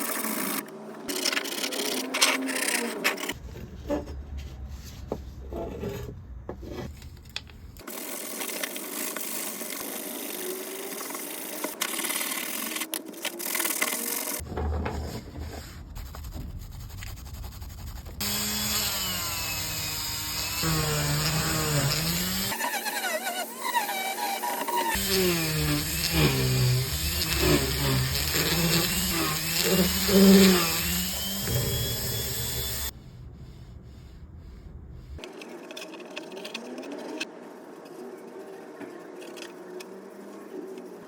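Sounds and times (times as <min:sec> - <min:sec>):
motor pitch rising and falling: 0:18.2 - 0:32.9
power tool running: 0:18.2 - 0:32.9.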